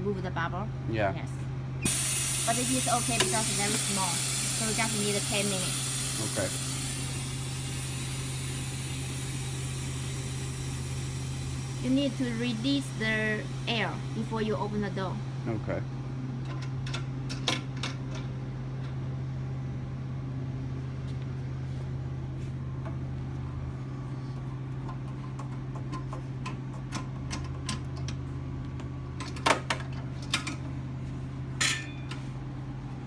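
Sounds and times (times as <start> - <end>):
machine humming: 0.9 - 16.6.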